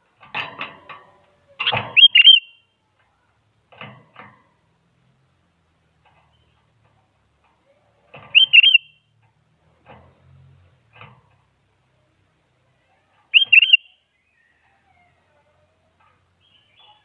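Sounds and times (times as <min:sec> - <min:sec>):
faint scratchy bird calls: 0:00.8 - 0:03.4, 0:06.0 - 0:17.0
bird singing bubbly phrases: 0:02.0 - 0:02.6, 0:08.4 - 0:08.9, 0:13.3 - 0:14.0.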